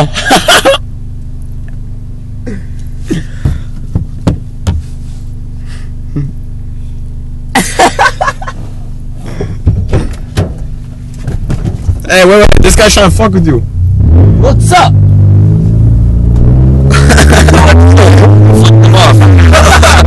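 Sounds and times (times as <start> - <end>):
car engine idling: 0.0 - 20.0
small knocks: 3.4 - 4.8, 9.6 - 12.1.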